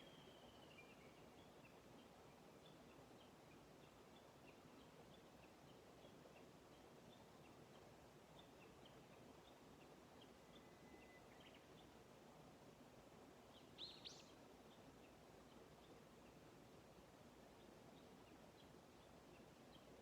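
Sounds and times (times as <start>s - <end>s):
small birds chirping: 13.4s - 16.5s.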